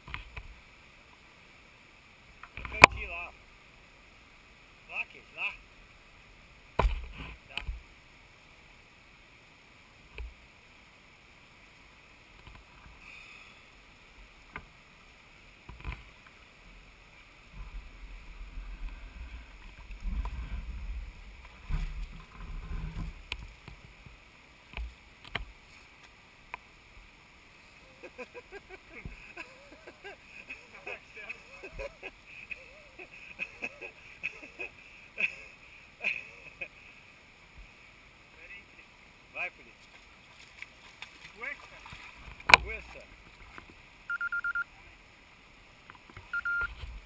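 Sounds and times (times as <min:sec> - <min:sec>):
faint steady hiss: 0:00.0 - 0:47.0
water sloshing and splashing: 0:39.8 - 0:43.8.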